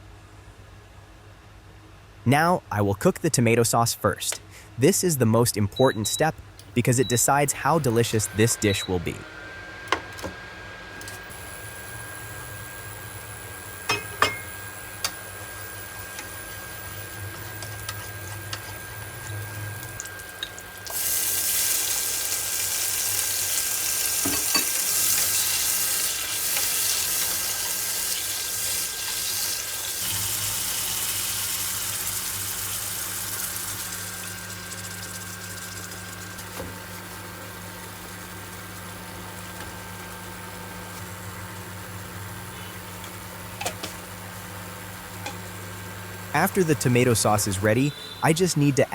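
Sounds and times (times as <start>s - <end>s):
sauce sizzling in a pan: 20.0s - 36.4s.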